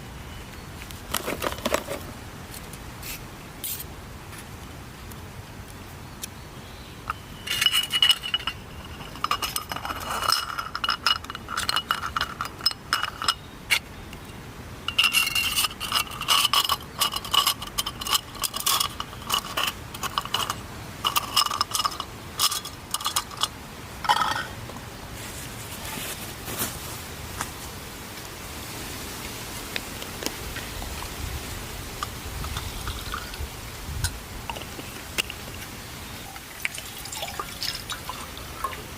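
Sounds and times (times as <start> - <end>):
small metal items clinking: 7.4 - 13.8, 14.9 - 24.6.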